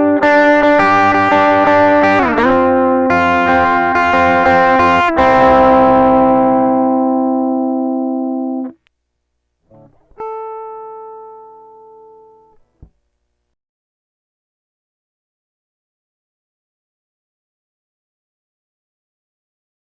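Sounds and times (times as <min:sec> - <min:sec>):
guitar chords ringing: 0:00.0 - 0:08.8, 0:09.7 - 0:12.7.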